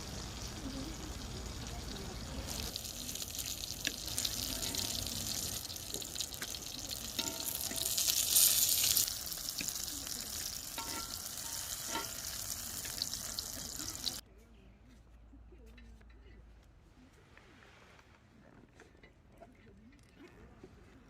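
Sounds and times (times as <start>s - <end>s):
food frying in oil: 0.0s - 14.2s.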